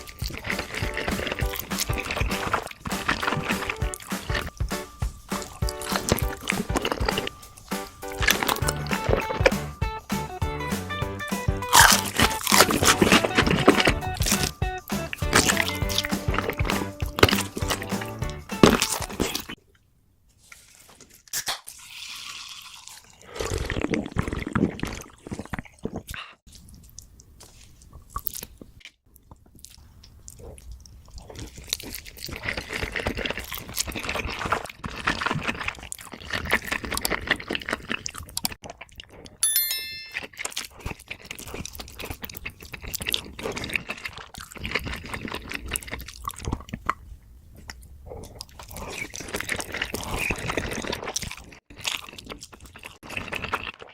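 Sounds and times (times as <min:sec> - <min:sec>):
close-miked eating and chewing: 0:00.0 - 0:09.5, 0:11.7 - 0:39.4, 0:40.2 - 0:53.9
high ringing tone: 0:39.4 - 0:40.3.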